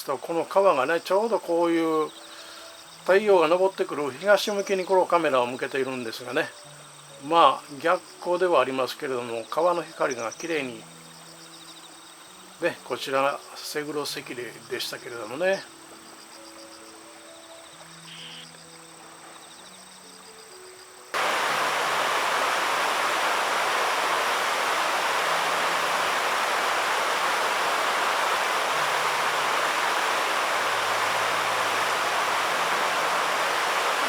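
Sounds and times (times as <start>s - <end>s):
insects chirping: 0.0s - 34.0s
river water over rapids: 21.2s - 34.0s.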